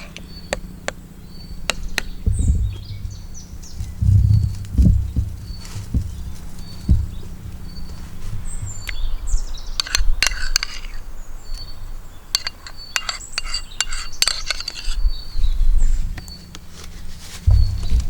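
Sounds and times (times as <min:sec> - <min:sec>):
high bird chirps: 0:00.0 - 0:16.5
utensils clinking: 0:09.8 - 0:11.0, 0:12.3 - 0:15.0.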